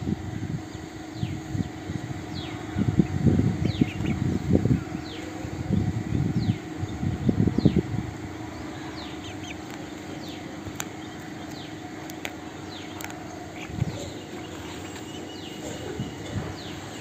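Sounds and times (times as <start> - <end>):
steady low hum: 0.0 - 17.0
sharp clicks: 10.7 - 13.2.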